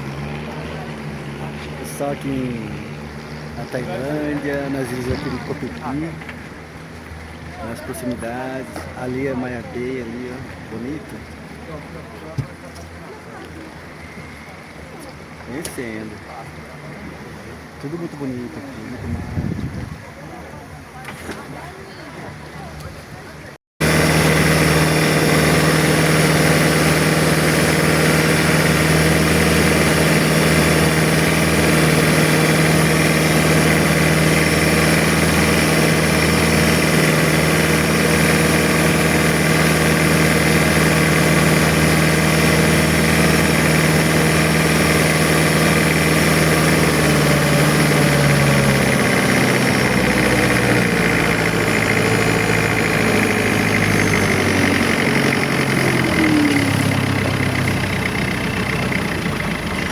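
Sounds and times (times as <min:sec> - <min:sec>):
boat engine running: 0:00.0 - 0:59.9.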